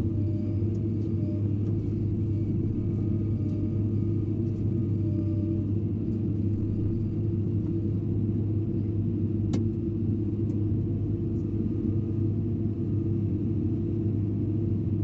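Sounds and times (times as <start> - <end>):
excavator diesel engine droning: 0.0 - 5.8.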